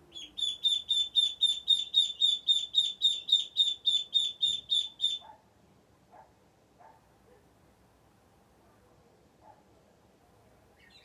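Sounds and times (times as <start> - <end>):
chick peeping: 0.0 - 5.3.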